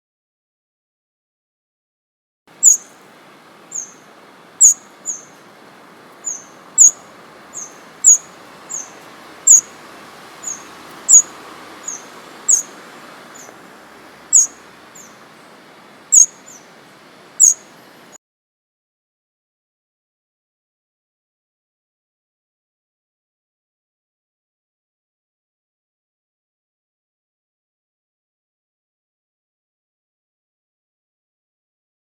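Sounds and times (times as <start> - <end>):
bird chirping high: 2.5 - 18.2
steady background hiss: 2.5 - 18.2.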